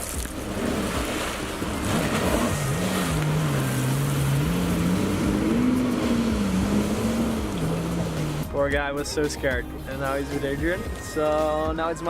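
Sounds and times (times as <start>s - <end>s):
water wash: 0.0s - 8.7s
watercraft engine running: 0.0s - 8.7s.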